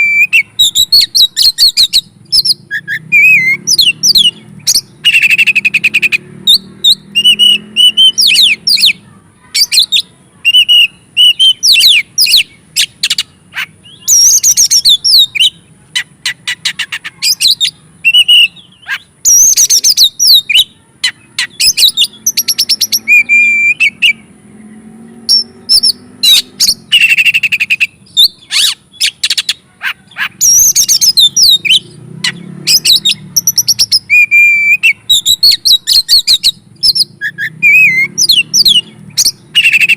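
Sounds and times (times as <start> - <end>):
songbird singing whistles and clicks: 25.3 - 29.6, 30.4 - 39.9.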